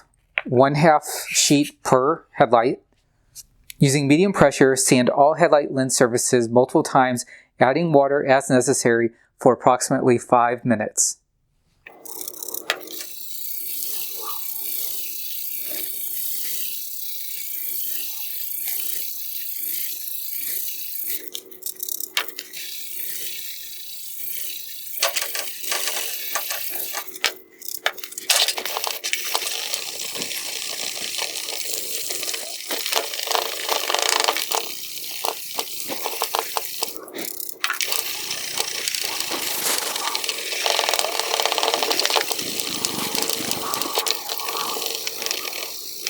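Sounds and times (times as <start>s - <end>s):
sandpaper rubbing on plastic: 25.0s - 46.0s.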